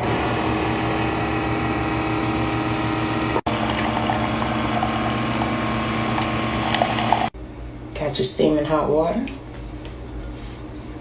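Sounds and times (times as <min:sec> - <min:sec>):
coffee machine pump dispensing water: 0:00.1 - 0:07.3.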